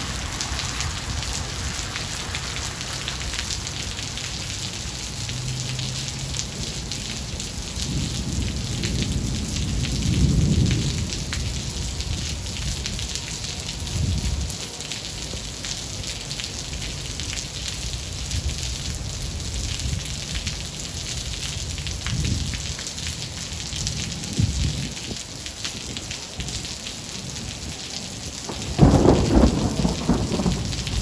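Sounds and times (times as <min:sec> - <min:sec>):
heavy rain: 0:00.0 - 0:31.0
thunder rumbling: 0:07.7 - 0:13.1, 0:28.4 - 0:31.0.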